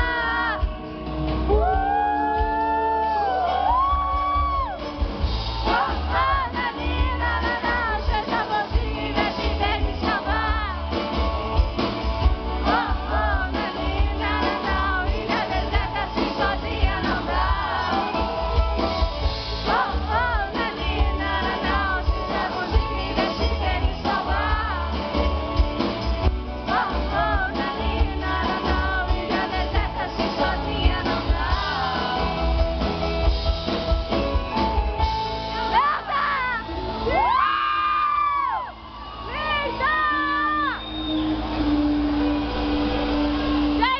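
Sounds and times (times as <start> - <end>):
person singing: 0.0 - 4.2, 19.6 - 25.3, 26.6 - 32.9
live band playing: 0.0 - 43.9.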